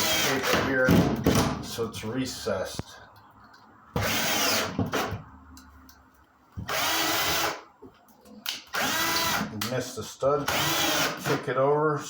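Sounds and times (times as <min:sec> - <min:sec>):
power drill driving screws: 0:00.0 - 0:00.6, 0:04.0 - 0:05.1, 0:06.6 - 0:07.6, 0:08.7 - 0:09.5, 0:10.4 - 0:11.4.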